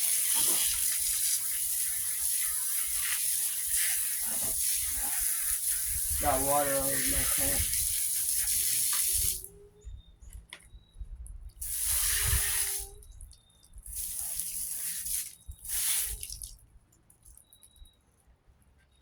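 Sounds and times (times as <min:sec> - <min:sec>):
garden hose spraying water: 0:00.0 - 0:09.5, 0:11.6 - 0:16.6.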